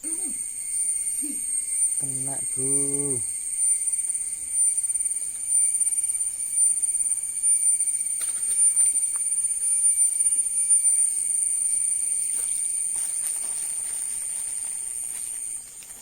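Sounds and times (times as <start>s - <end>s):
shrill insect call: 0.0s - 16.0s
faint clicks and rustles: 12.2s - 16.0s.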